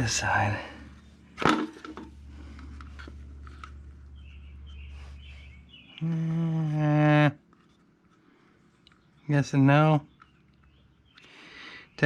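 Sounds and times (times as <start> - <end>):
steady low hum: 0.0 - 12.0
faint bird chirps: 4.0 - 7.3, 8.8 - 12.0.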